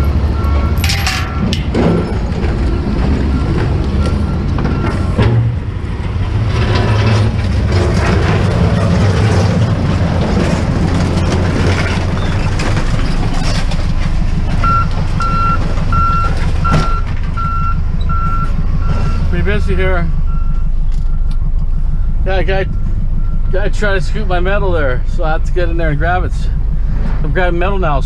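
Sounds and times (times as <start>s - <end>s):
reversing alarm beeping: 0.0s - 5.3s, 14.2s - 28.0s
truck engine rumbling: 0.0s - 28.0s.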